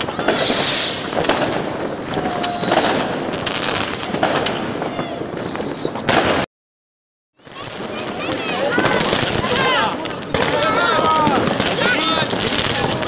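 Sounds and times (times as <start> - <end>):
firework hissing burst: 0.0 - 4.8
firecrackers banging: 0.0 - 6.5, 7.4 - 13.0
fireworks whistling: 0.0 - 6.5, 7.4 - 13.0.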